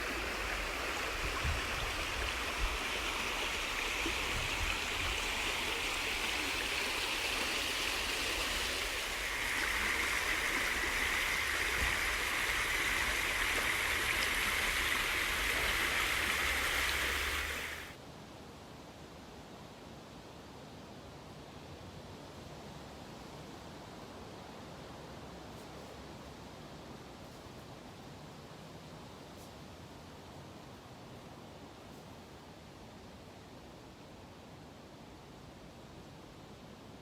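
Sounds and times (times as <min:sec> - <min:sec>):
running water rushing: 0:00.0 - 0:18.0.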